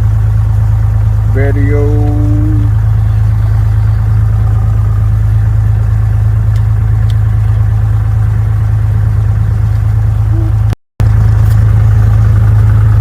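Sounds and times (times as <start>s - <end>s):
piston aircraft engine idling: 0.0s - 13.0s.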